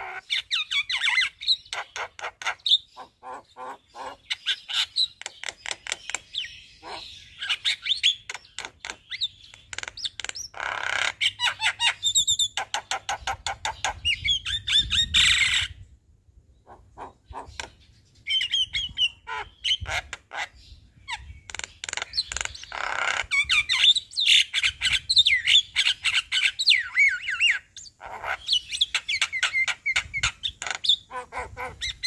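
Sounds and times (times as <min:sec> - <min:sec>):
harsh bird squawks: 0:06.8 - 0:08.2, 0:16.6 - 0:17.7, 0:21.9 - 0:32.0.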